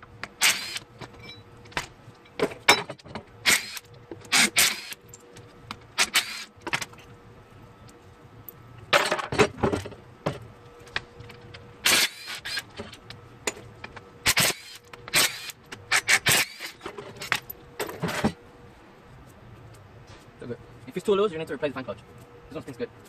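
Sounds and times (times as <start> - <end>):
faint steady hum: 0.0 - 23.0
metal tools clanking: 1.0 - 1.5, 16.0 - 18.4.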